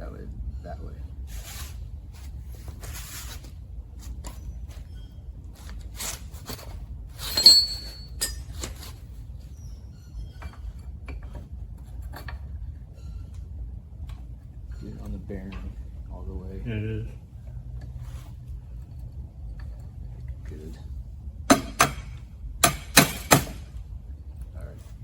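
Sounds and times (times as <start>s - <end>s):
metal axle parts clinking and scraping: 0.6s - 13.4s, 17.0s - 25.0s
loud ringing metallic clink: 7.3s - 8.6s.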